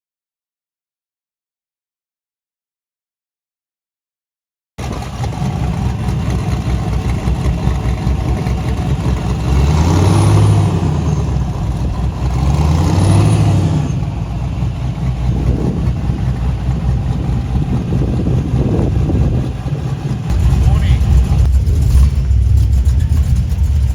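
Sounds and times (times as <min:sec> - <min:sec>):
car engine revving: 0:04.8 - 0:23.9.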